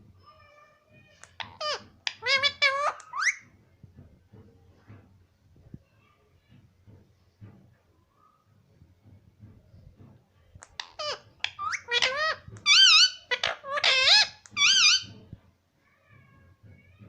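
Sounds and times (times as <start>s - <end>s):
parrot squawking and chattering: 1.2s - 3.4s, 10.6s - 15.2s.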